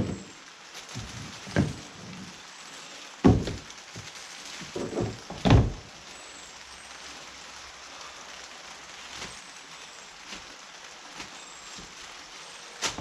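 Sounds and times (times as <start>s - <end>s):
rain falling: 0.0s - 13.0s
dull thuds: 3.2s - 4.1s, 4.7s - 5.9s.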